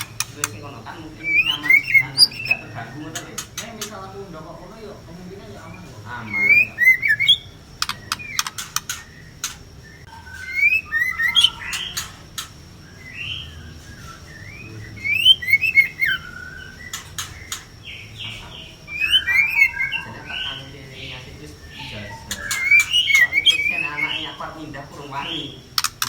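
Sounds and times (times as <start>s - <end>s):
sharp bird clicks: 0.0s - 4.0s, 6.4s - 13.5s, 15.2s - 18.1s, 21.8s - 23.8s, 25.7s - 26.0s
birds whistling calls: 0.0s - 26.0s.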